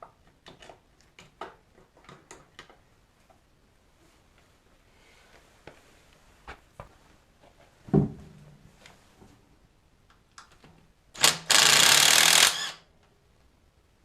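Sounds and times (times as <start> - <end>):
power tool burst: 11.2 - 12.8.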